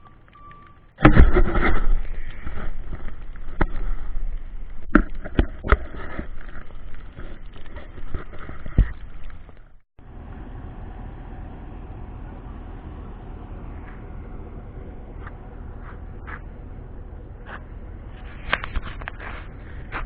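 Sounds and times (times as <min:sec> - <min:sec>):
sharp knocks and clunks: 0:00.0 - 0:04.2
plow truck running through snow: 0:00.0 - 0:04.7, 0:09.3 - 0:20.0.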